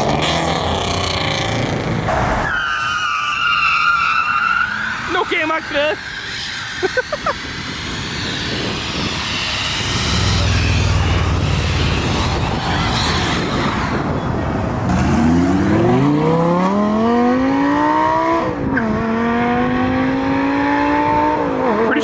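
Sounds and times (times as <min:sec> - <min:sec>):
car engine accelerating: 0:07.5 - 0:22.0.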